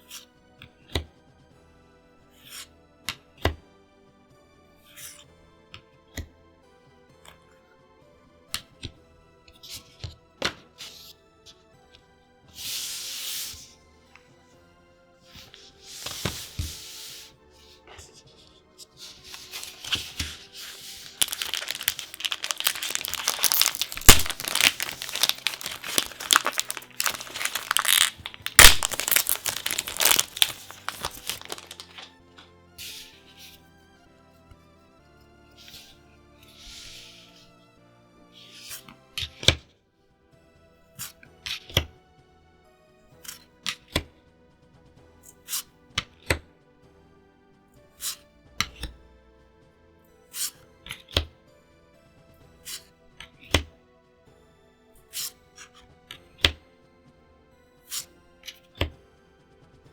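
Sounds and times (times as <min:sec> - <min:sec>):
faint music: 0:00.0 - 0:59.9
card sliding swish: 0:15.9 - 0:17.3
plastic packaging crinkling: 0:19.2 - 0:32.1
sharp plastic snaps: 0:21.1 - 0:32.1.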